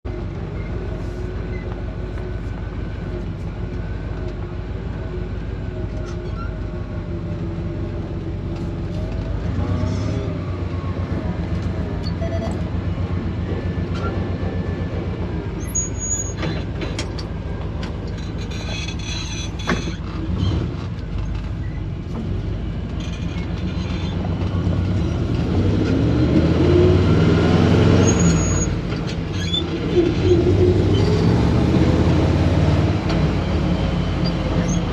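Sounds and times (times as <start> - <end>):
vehicle engine running: 0.0 - 15.9.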